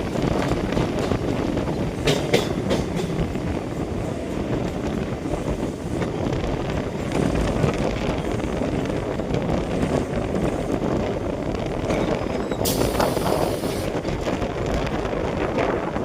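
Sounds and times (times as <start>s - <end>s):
train rumbling on tracks: 0.0s - 16.0s
wind buffeting microphone: 0.0s - 16.0s
sharp hiss: 12.7s - 13.9s.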